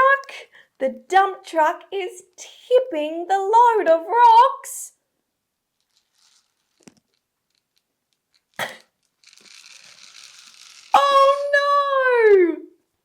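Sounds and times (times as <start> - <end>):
rocks rattling and sliding: 5.7 - 11.6.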